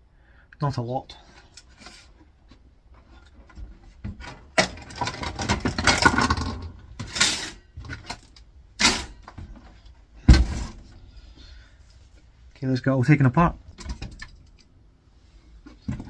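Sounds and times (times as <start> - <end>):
sharp knocks of parts set down: 3.6 - 9.6, 10.2 - 10.9
appliance parts clattering: 4.1 - 10.9.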